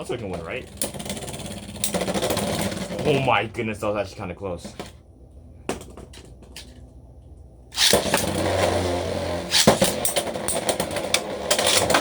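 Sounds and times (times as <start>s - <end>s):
spinning tops colliding: 7.8s - 12.0s
spinning tops whirring: 7.8s - 12.0s.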